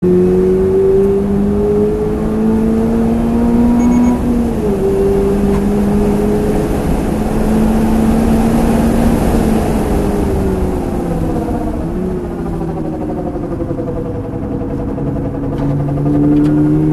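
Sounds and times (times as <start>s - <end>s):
car road rumble: 0.0s - 16.9s.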